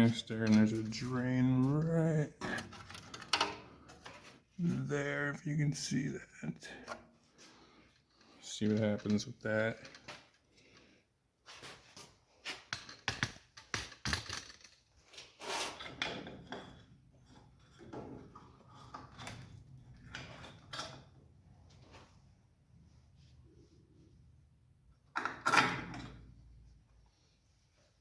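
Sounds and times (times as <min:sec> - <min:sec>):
metal tools clanking: 0:08.2 - 0:10.3.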